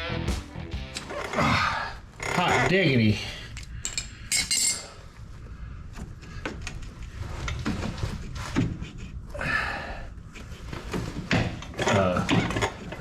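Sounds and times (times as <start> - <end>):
metal tools clinking: 3.6 - 5.0.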